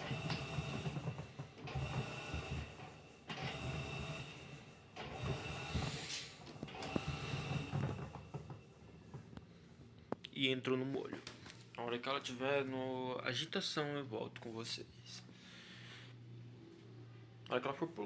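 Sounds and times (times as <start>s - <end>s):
washing machine agitating: 0.0s - 9.2s.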